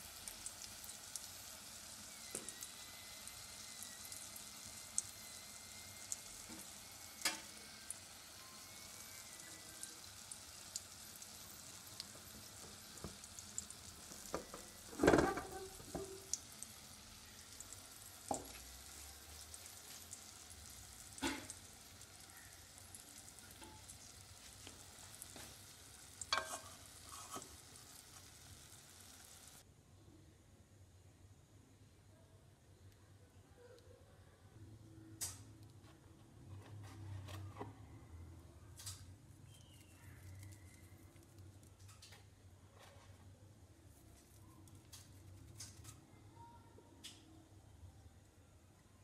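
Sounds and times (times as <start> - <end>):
food sizzling in a pan: 0.0 - 29.6
metal clinks and scrapes on pan: 26.3 - 27.6.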